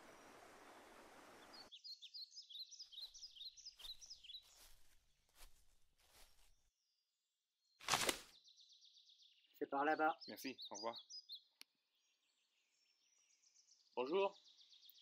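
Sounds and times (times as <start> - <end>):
small bird chirping: 0.0 - 4.8, 8.3 - 15.0
rustling through leafy branches: 3.8 - 6.6, 7.8 - 8.3.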